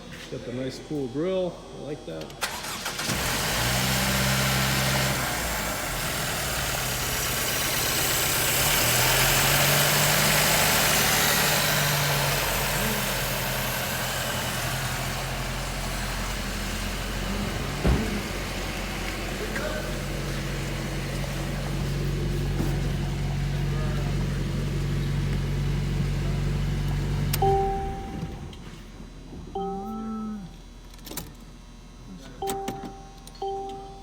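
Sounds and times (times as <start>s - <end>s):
car engine idling: 2.4s - 28.6s.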